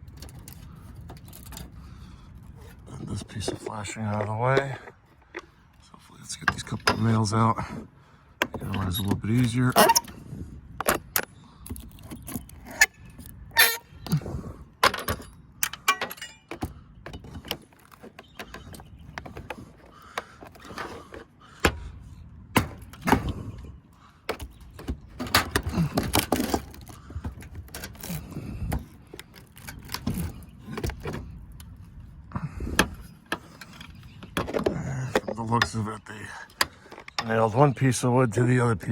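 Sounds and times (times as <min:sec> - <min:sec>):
hand tool knocking and scraping wood: 0:02.6 - 0:05.6.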